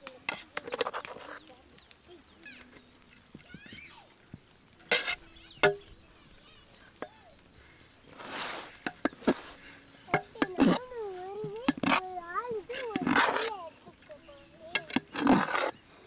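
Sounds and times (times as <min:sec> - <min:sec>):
metal spoon knocking in pot: 0:04.9 - 0:06.1, 0:08.8 - 0:13.5, 0:14.7 - 0:15.7.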